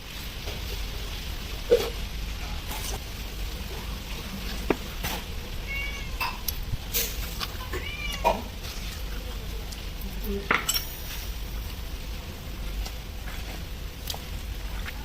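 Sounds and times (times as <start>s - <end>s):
cat meowing: 5.6s - 6.4s, 7.5s - 8.5s.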